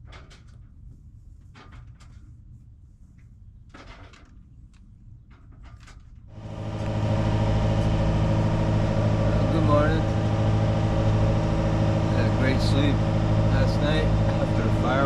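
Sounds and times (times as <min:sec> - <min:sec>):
faint knocks and clatters: 0:00.0 - 0:02.4, 0:03.2 - 0:06.3
low hum: 0:06.2 - 0:15.0
boat engine drone: 0:06.3 - 0:15.0.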